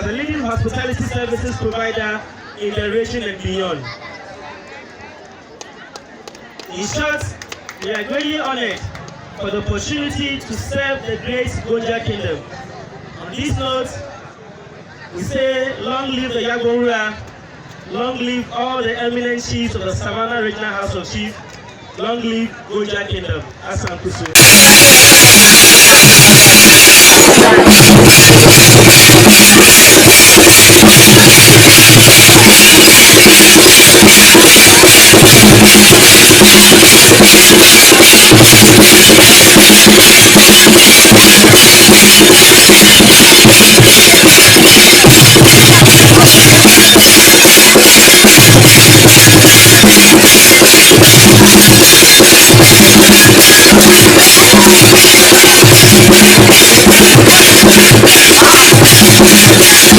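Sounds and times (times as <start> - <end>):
loud drum-led music: 0.0 - 1.3, 24.3 - 59.9.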